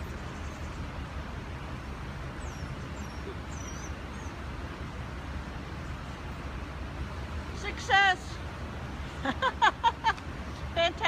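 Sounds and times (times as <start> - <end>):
high bird chirps: 2.4 - 4.4.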